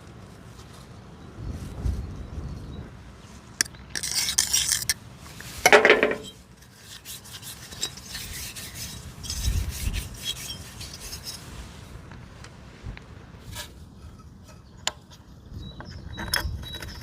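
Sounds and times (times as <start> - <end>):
hand scraping and rubbing: 3.3 - 14.7.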